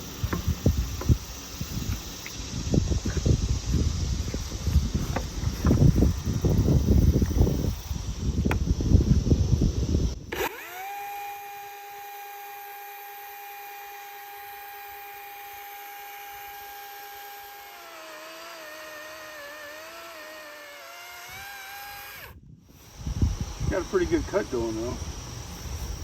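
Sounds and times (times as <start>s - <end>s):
power tool motor whining: 10.0s - 26.0s.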